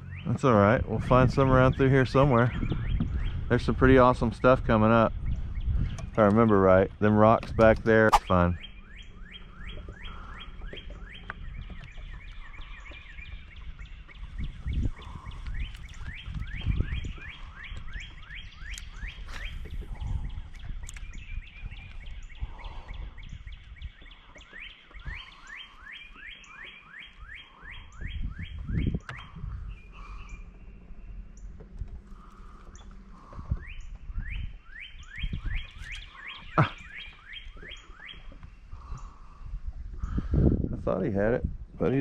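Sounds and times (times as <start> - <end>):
bird chirping rapidly: 8.0 - 31.6, 32.2 - 39.1
low outdoor rumble: 27.2 - 37.0.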